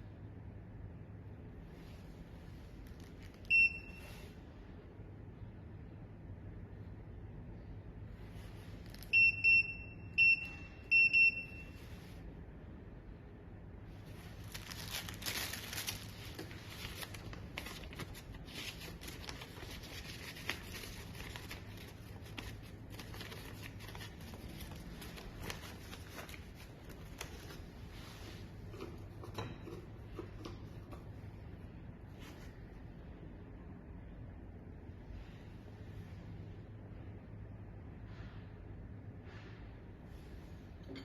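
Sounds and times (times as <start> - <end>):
rustling: 14.0 - 29.2.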